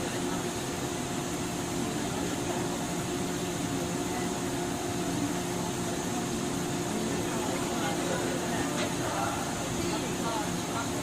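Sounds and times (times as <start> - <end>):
electric train car hum: 0.0 - 11.0.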